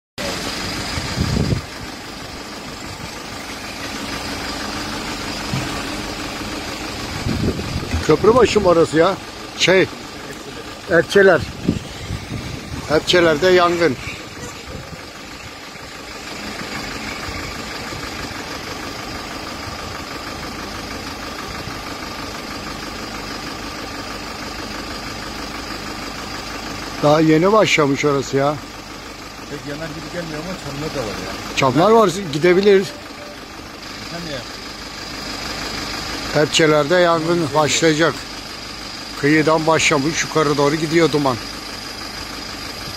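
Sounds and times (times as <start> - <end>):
low engine rumble: 0.2 - 42.9
vehicle engine idling: 0.2 - 42.9.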